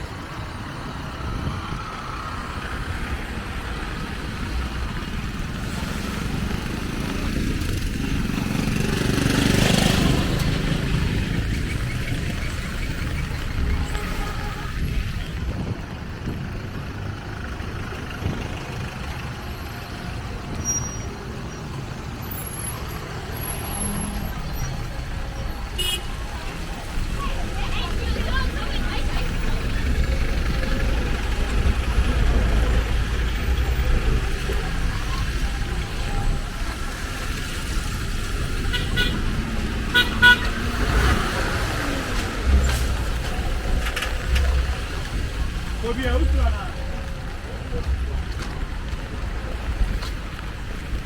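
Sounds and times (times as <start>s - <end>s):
street noise: 0.0s - 51.0s
vehicle engine rumbling: 0.0s - 51.0s
vehicle horn toots: 13.8s - 15.0s, 25.8s - 26.1s, 38.7s - 39.2s, 39.9s - 41.1s.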